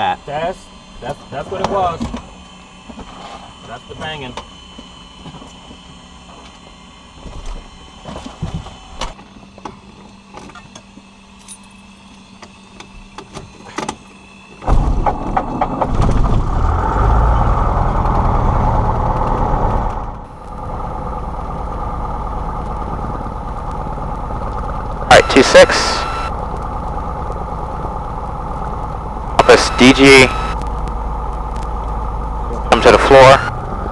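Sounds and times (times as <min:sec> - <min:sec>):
aircraft piston engine running: 0:20.3 - 0:33.9.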